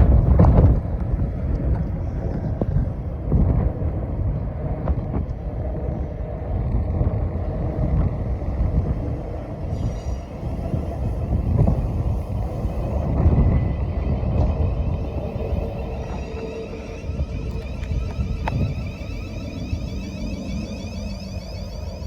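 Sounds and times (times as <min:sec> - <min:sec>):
train wheels rumbling on rails: 0:00.0 - 0:22.0
faint high whine: 0:09.4 - 0:22.0.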